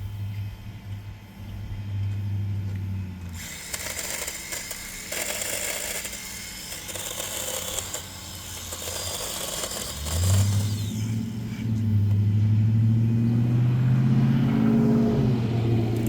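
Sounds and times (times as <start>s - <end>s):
electric chainsaw cutting wood: 3.3s - 11.9s.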